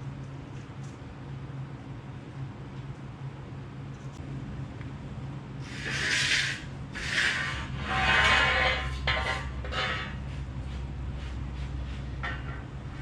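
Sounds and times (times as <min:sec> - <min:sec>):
steady low hum: 0:00.0 - 0:13.0
harsh rasping metalworking noise: 0:05.6 - 0:13.0.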